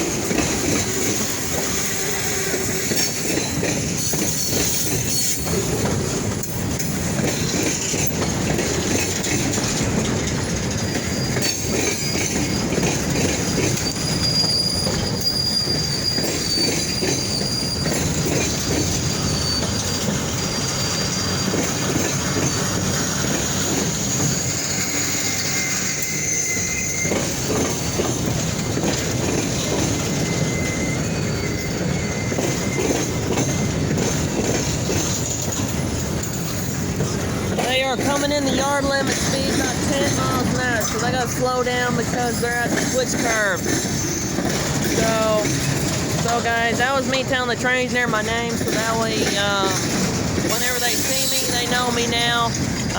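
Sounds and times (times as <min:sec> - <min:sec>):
train cars rumbling: 0:00.0 - 0:52.9
wheels squealing against rails: 0:00.0 - 0:52.9.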